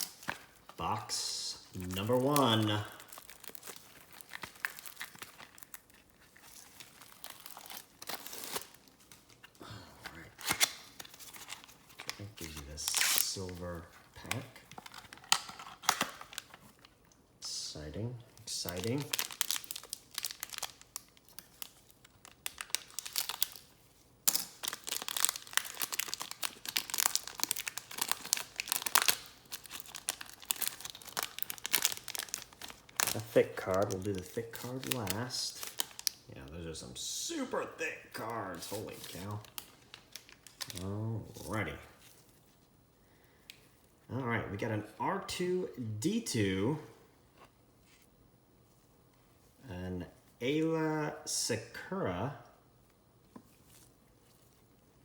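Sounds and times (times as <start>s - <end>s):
packaging crinkled and torn open: 0.0s - 17.2s, 18.4s - 36.3s, 38.2s - 42.6s.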